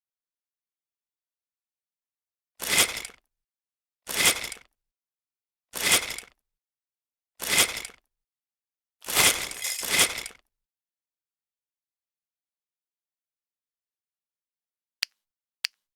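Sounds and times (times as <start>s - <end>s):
toy car spring motor whirring: 4.1s - 4.7s, 5.8s - 6.4s, 7.4s - 8.0s, 9.0s - 10.4s.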